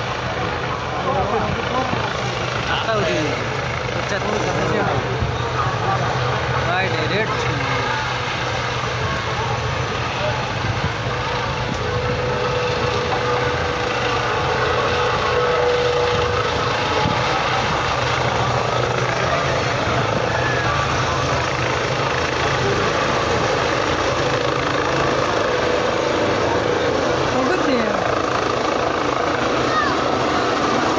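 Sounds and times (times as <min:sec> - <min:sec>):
helicopter engine and rotor: 0:00.0 - 0:30.9.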